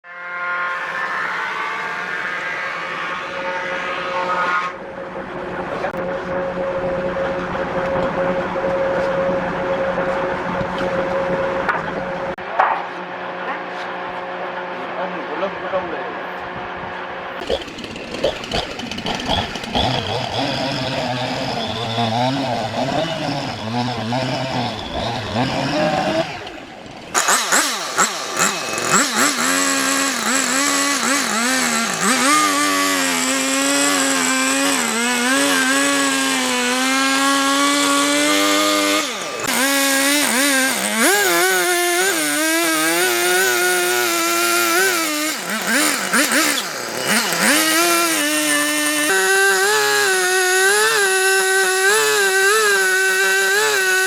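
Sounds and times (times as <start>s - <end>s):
high smooth motor sound: 0.0s - 12.4s, 13.0s - 54.0s
rough engine-like sound: 0.0s - 54.0s
power tool motor running: 17.4s - 54.0s.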